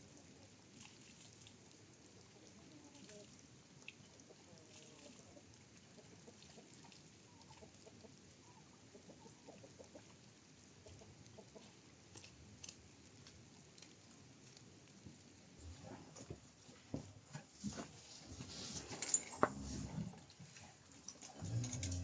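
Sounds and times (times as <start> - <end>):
chickens clucking faintly: 4.2 - 12.2.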